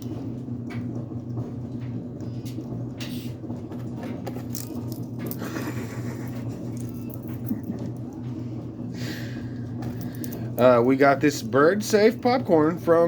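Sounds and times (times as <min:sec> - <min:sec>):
steady low hum: 0:00.0 - 0:13.0
parrot crunching popcorn: 0:03.7 - 0:08.1.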